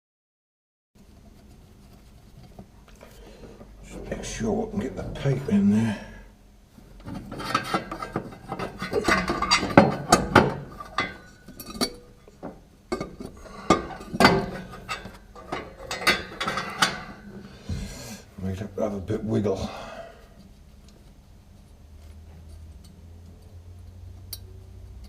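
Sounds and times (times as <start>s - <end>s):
metal clinking and scraping: 7.0s - 17.5s.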